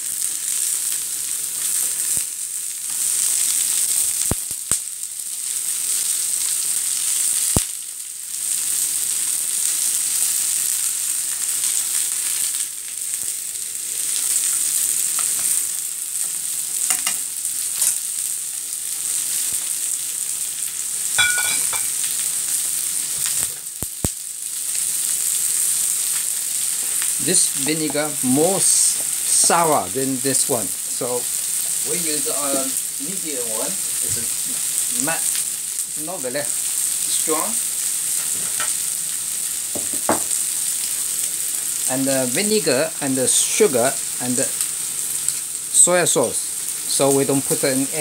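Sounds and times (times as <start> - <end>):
potatoes sizzling in oil: 0.0 - 48.0
utensil tapping pan: 21.2 - 22.0.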